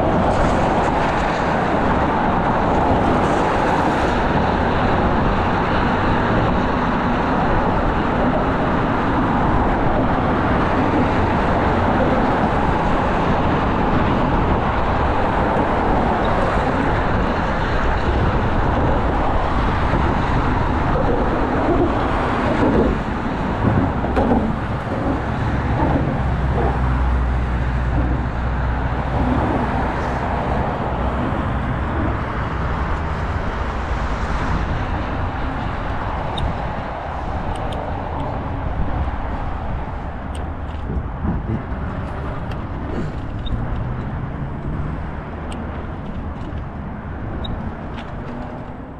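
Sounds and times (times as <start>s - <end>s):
road traffic: 0.0s - 48.9s
deep rumble: 9.6s - 43.8s
loud knocks: 21.7s - 27.0s.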